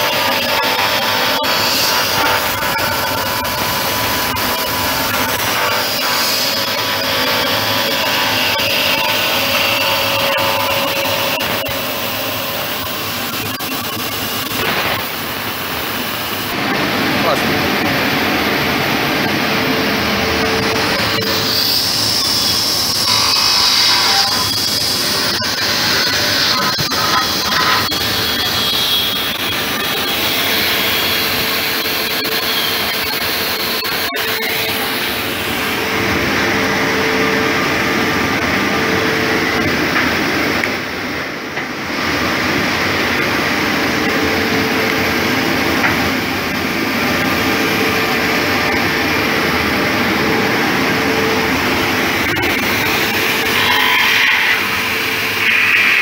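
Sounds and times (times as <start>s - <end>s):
mortising machine motor humming: 0.0s - 28.3s.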